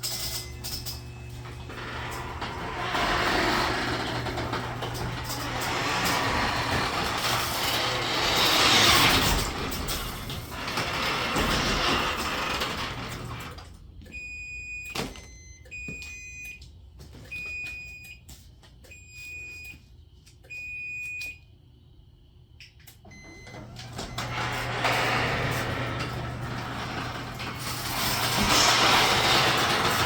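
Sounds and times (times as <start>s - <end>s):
mechanical noise: 0.0s - 13.8s, 23.1s - 30.0s.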